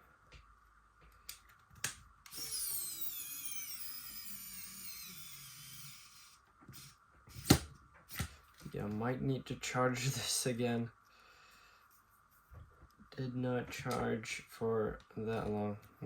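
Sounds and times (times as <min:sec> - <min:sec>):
electric screwdriver motor whine: 0:02.3 - 0:07.7.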